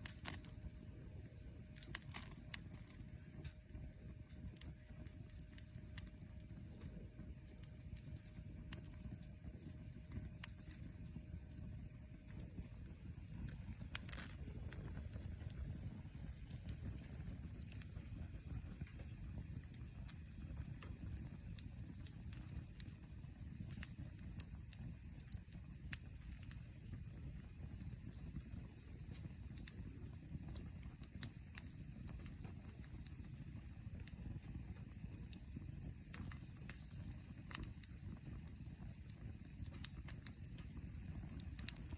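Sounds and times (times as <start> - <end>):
high-pitched insect trill: 0.0 - 41.9.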